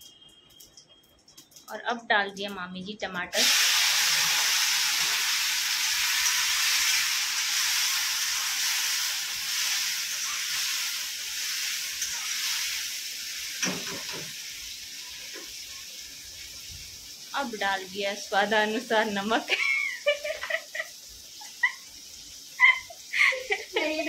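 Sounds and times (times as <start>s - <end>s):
tomatoes sizzling in hot oil: 0.6s - 24.0s.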